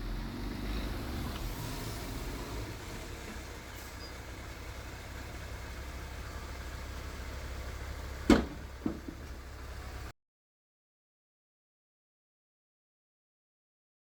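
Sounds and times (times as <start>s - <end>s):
diesel engine rumbling: 0.0s - 10.1s
sharp knocks: 8.3s - 9.3s.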